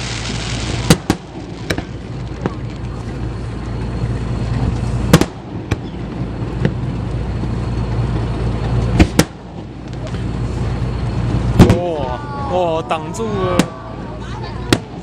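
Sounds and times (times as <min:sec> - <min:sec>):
fireworks bangs: 0:00.0 - 0:03.4, 0:04.3 - 0:06.9, 0:08.9 - 0:12.1, 0:13.2 - 0:15.0
steady low rumble: 0:00.0 - 0:15.0.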